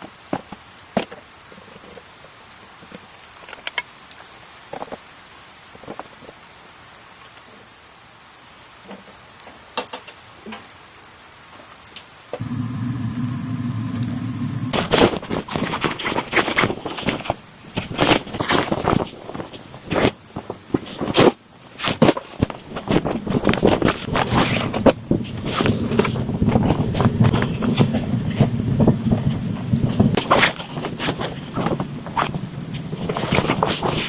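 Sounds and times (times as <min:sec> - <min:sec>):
rain pattering: 0:00.0 - 0:34.0
rapid crackling clicks: 0:11.9 - 0:34.0
low mechanical hum: 0:12.4 - 0:16.2, 0:22.8 - 0:34.0.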